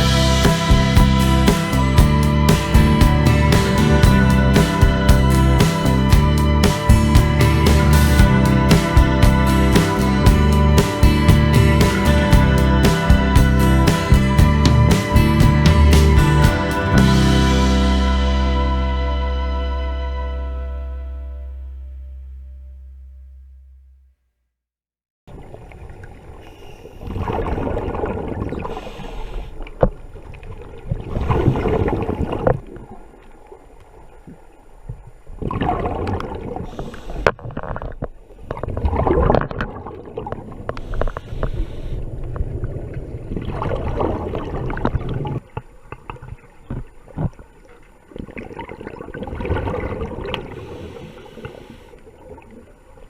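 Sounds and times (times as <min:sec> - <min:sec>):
gurgling exhaled bubbles: 0:38.5 - 0:45.4, 0:48.1 - 0:52.9
underwater regulator breathing: 0:50.4 - 0:52.1.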